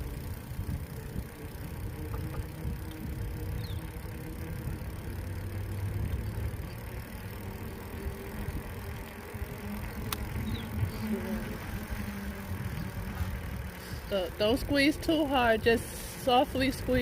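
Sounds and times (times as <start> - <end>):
bicycle tyres on road: 0.0 - 17.0
faint traffic hum: 0.0 - 17.0
wind on microphone: 0.3 - 3.8, 10.0 - 14.1.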